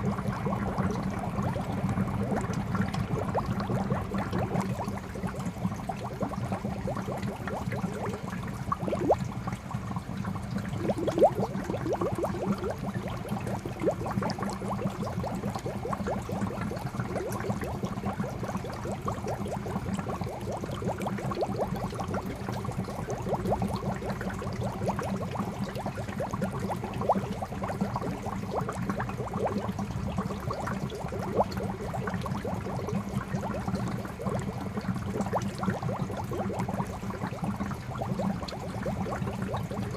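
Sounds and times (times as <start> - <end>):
fountain water splashing into pond: 0.0 - 9.6, 10.5 - 29.9.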